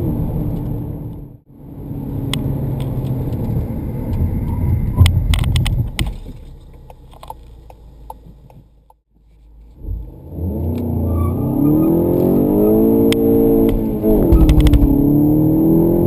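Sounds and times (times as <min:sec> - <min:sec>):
road and tyre rumble: 0:00.0 - 0:16.0
car engine accelerating: 0:09.6 - 0:16.0.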